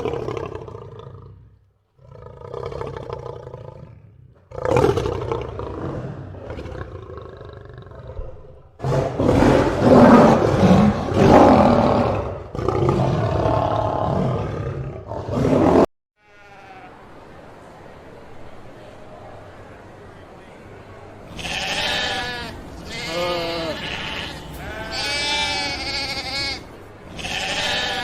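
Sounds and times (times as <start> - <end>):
lion roaring: 0.0 - 15.9.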